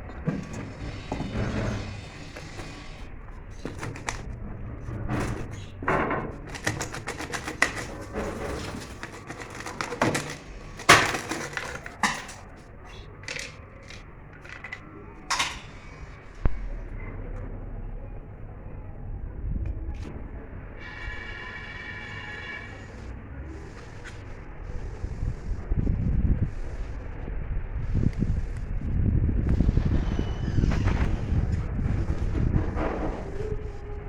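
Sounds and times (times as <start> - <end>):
knocks clicks and scraping: 0.0 - 16.6, 29.4 - 34.0.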